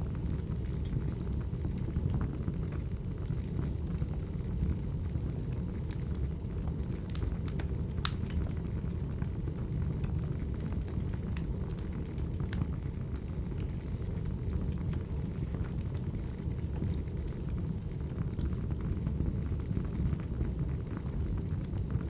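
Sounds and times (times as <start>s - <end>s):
wood fire crackling: 0.0s - 22.0s
sharp pops of burning wood: 6.9s - 8.8s.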